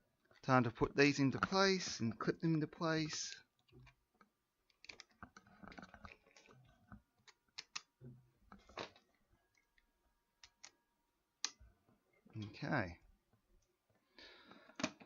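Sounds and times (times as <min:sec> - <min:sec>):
plastic parts clicking: 0:03.1 - 0:09.8, 0:10.4 - 0:10.8.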